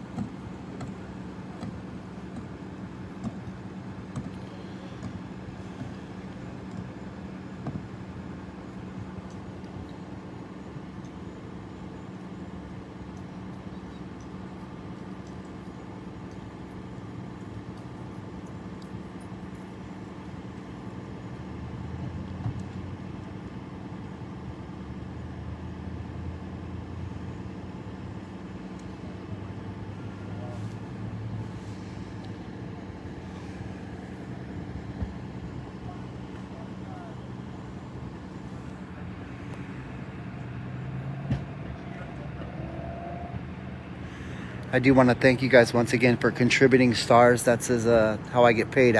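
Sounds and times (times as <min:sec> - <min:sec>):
vehicle engine humming: 0:00.0 - 0:48.9
deeper engine note: 0:28.7 - 0:48.9.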